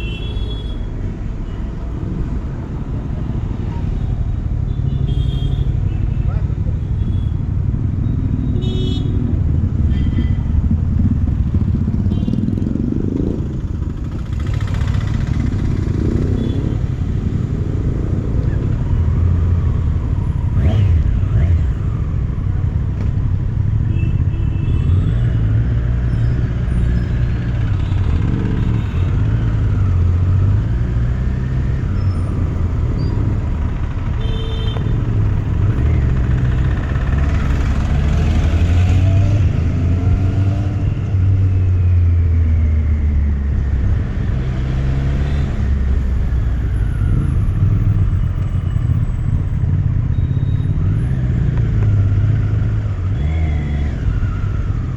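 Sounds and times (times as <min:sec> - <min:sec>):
motorcycle engine revving: 0:08.2 - 0:18.2, 0:20.4 - 0:22.4, 0:35.0 - 0:46.2.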